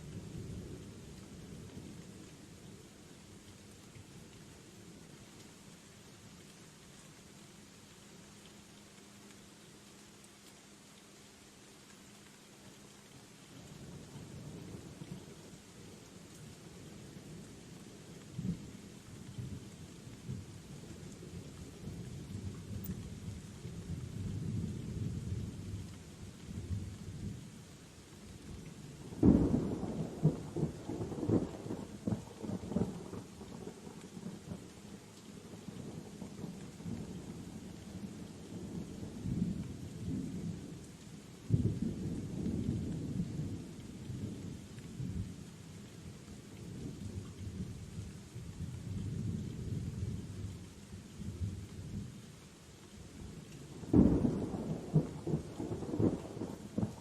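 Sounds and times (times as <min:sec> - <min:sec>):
steady rain: 0:00.0 - 0:57.0
thunder rumbling: 0:53.8 - 0:57.0.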